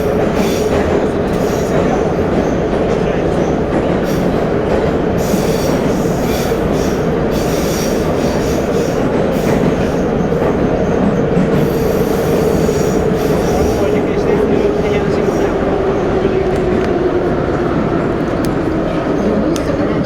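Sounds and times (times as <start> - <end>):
train wheels rumbling on rail: 0.0 - 20.0
high wheel squeal: 5.2 - 16.1.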